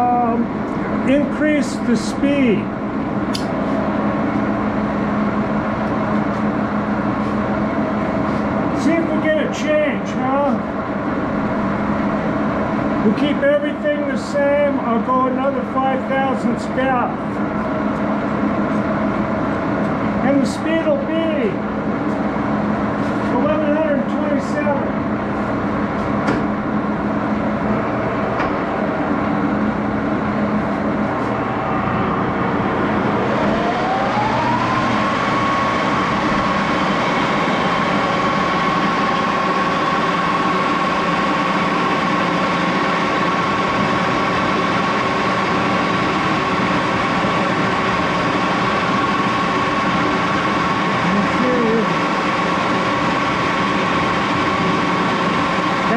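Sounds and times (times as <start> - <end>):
lathe running: 14.1 - 55.9
rising whine: 15.5 - 55.9.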